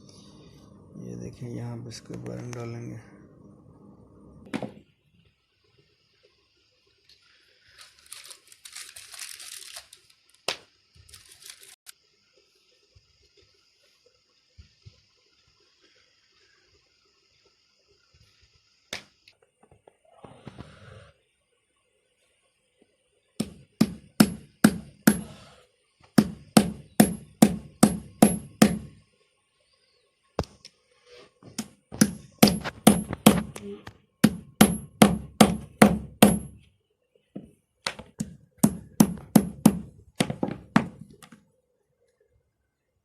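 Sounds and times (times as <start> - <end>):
hammer knocking on metal: 26.2 - 28.9, 34.2 - 36.6, 38.2 - 41.0.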